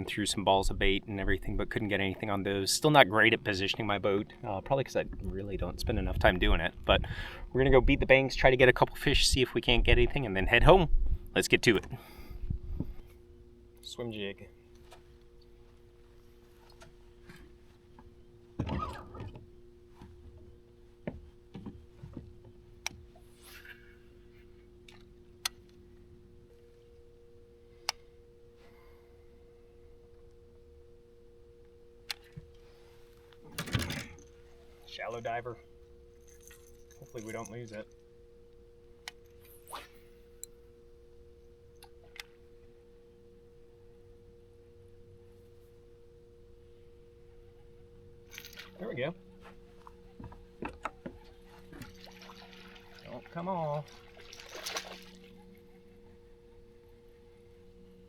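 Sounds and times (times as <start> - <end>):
low two-tone hum: 0.0 - 58.0
fishing rod cast whoosh: 39.5 - 40.1.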